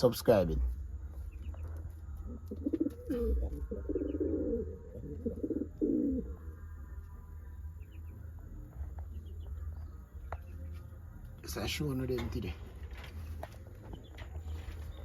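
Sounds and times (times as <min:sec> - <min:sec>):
pigeons cooing: 0:02.2 - 0:06.6.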